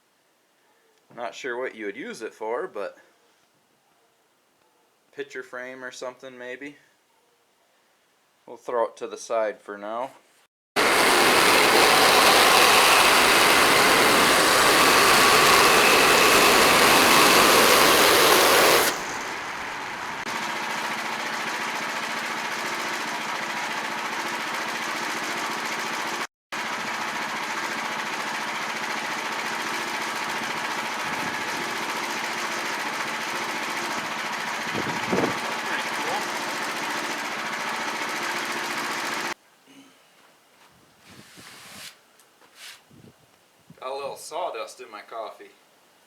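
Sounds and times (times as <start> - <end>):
sawmill gas engine running: 10.8 - 39.4.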